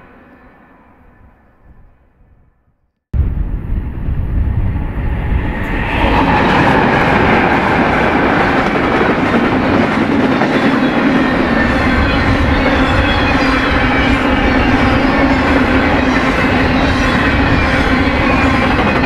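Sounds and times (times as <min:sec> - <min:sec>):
train wheels rumbling on rails: 0:03.2 - 0:19.0.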